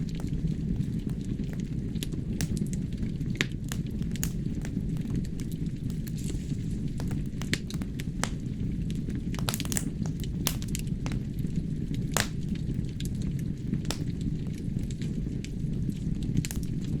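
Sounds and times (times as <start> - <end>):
fire flames rumbling: 0.0 - 17.0
logs crackling and popping: 0.0 - 17.0.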